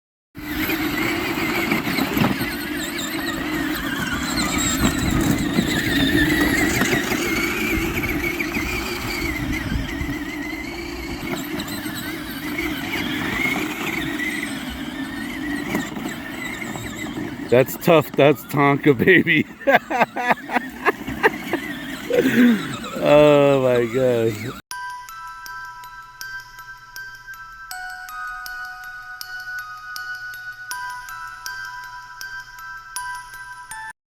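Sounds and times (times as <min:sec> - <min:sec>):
toy truck electric motor whine: 0:00.4 - 0:24.6.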